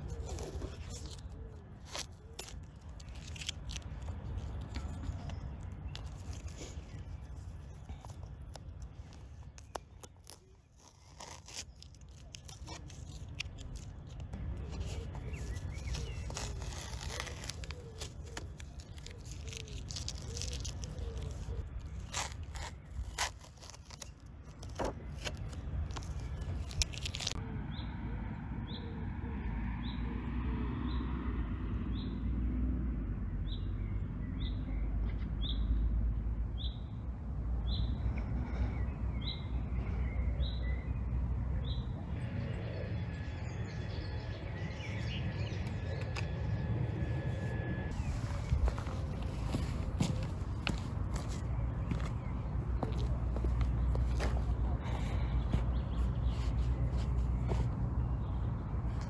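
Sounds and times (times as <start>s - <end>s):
bird chirping high rising: 37.6s - 59.0s.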